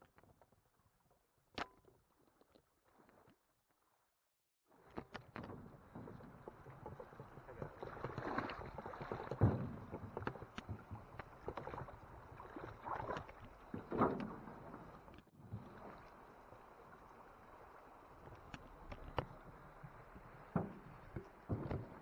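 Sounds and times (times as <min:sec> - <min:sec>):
paddle strokes in water: 0:04.9 - 0:22.0.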